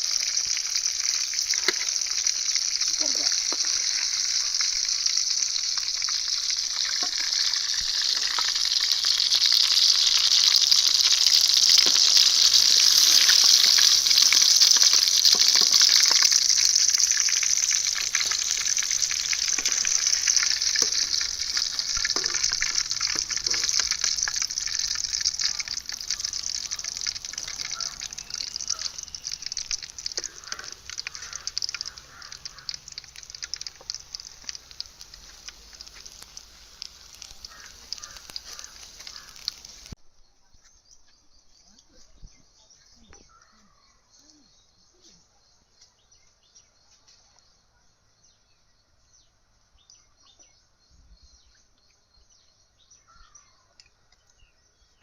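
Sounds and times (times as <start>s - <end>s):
food sizzling in hot oil: 0.0s - 40.0s.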